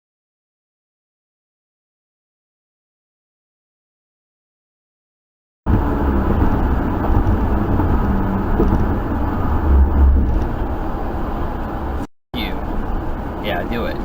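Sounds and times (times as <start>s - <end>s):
moving car rumble: 5.7s - 14.0s.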